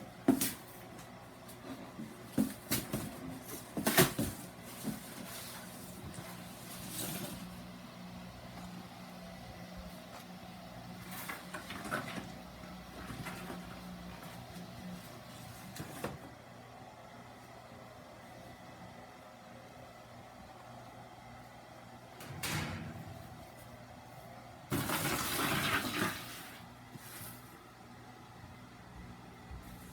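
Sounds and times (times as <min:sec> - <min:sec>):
steady low hum: 0:04.3 - 0:24.7.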